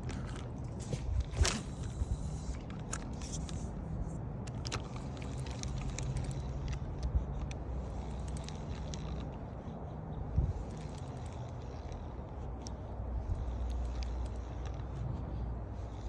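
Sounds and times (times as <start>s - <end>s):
engine humming: 0.0s - 16.0s
small clicks and rattles: 0.0s - 16.0s.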